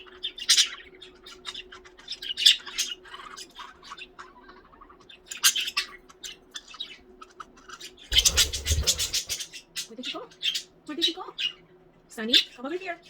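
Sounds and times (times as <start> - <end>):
budgies chirping and squawking: 0.0 - 13.0
scratchy rustling: 8.1 - 9.4.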